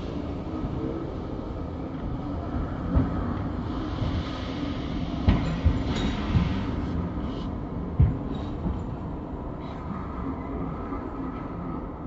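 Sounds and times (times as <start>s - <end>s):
train wheels rumbling on track: 0.0s - 9.6s.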